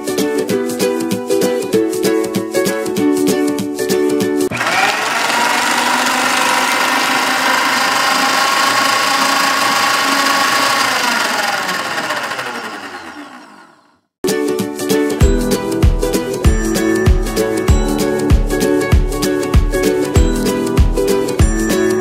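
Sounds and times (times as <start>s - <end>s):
loud mechanical whirring: 4.5s - 14.1s.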